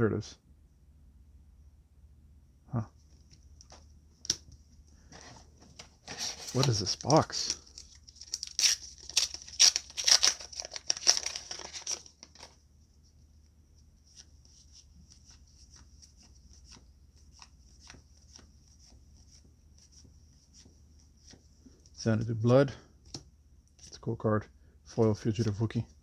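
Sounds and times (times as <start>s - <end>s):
wrapper tearing and crinkling: 6.0s - 12.6s.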